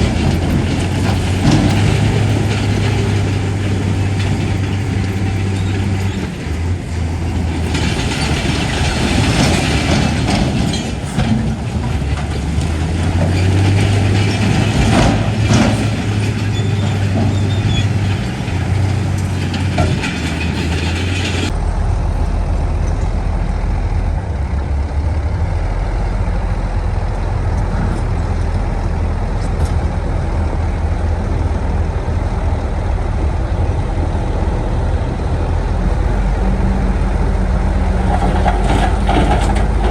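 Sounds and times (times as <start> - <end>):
stone and soil clanking: 0.0 - 21.6, 35.9 - 39.9
heavy diesel machinery engine: 0.0 - 39.9.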